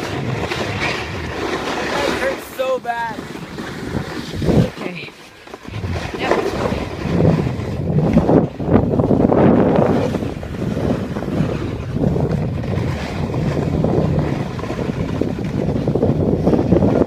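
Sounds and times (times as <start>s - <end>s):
snowboard scraping over icy snow: 0.0s - 17.0s
wind buffeting microphone: 0.0s - 17.0s.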